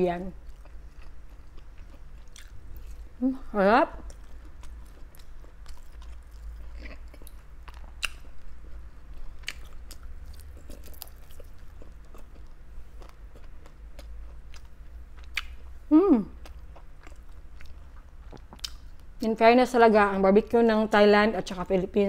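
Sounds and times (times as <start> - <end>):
low steady hum: 0.0 - 22.0
chewing and biting meat: 0.4 - 3.1, 4.1 - 15.6.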